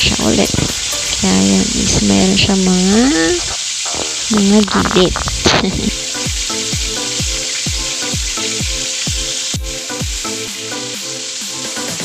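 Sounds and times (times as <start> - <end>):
chicken sizzling in hot oil: 0.0 - 12.0
background music with steady beat: 0.3 - 2.1, 5.8 - 12.0.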